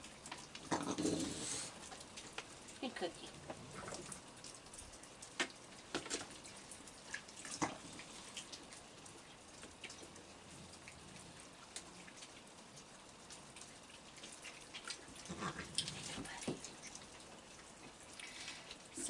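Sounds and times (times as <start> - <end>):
light rain: 0.0 - 19.0
raindrops ticking on surfaces: 0.0 - 19.0.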